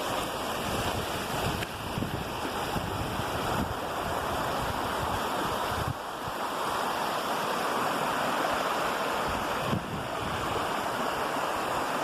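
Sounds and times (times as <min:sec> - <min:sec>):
waterfall rushing: 0:00.0 - 0:12.0
wind rumble on microphone: 0:00.6 - 0:06.4, 0:09.2 - 0:11.0.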